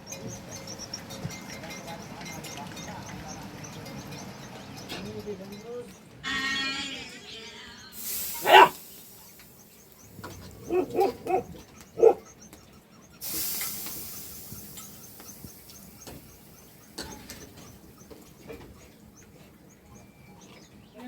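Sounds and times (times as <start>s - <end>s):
hiss: 8.0s - 11.0s, 13.2s - 18.0s
short animal calls: 8.4s - 8.8s, 10.1s - 12.2s.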